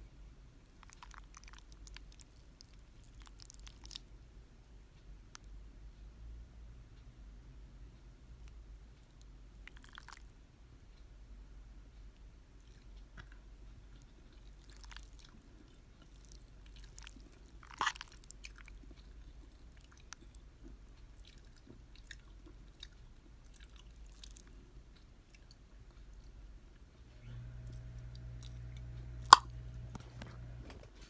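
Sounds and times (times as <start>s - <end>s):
wet chewing: 0.6s - 4.1s, 9.7s - 10.3s, 14.0s - 24.6s, 27.7s - 29.6s.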